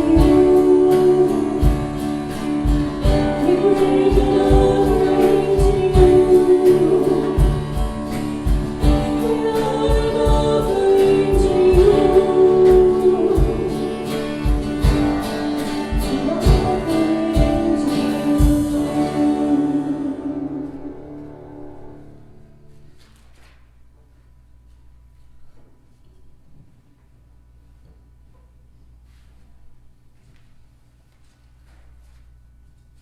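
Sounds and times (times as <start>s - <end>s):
band with steady drum beat: 0.0s - 19.6s
voices singing worship song: 0.0s - 22.0s.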